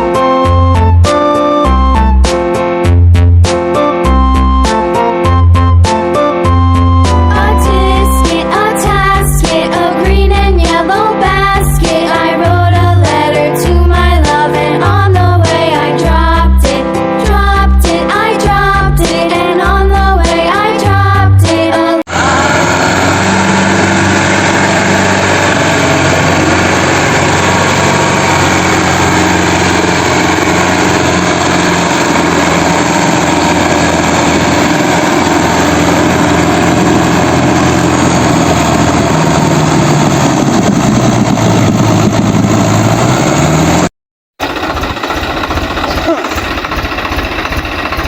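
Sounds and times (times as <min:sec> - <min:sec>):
vehicle engine running and revving: 0:22.1 - 0:48.0.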